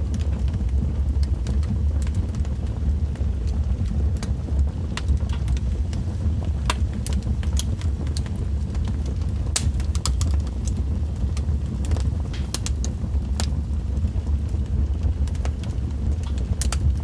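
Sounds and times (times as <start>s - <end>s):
wood fire crackling: 0.0s - 17.0s
sharp pops and snaps: 6.6s - 13.5s, 15.2s - 17.0s.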